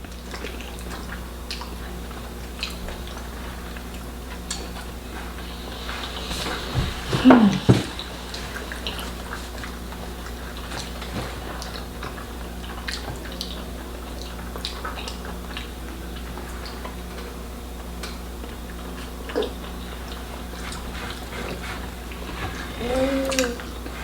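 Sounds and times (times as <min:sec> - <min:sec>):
low steady hum: 0:01.5 - 0:12.1.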